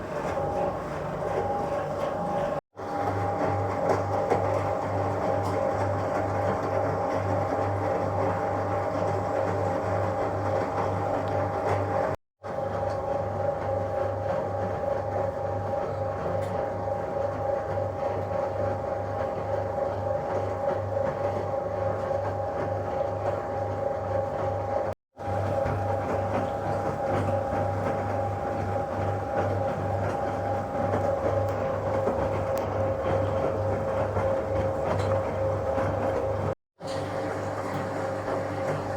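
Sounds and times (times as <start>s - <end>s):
washing machine throbbing hum: 0.0s - 38.9s.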